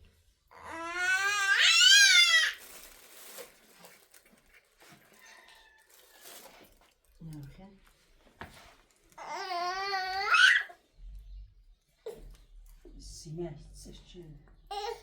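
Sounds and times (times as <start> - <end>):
wavering high-pitched cry: 9.2 - 10.8.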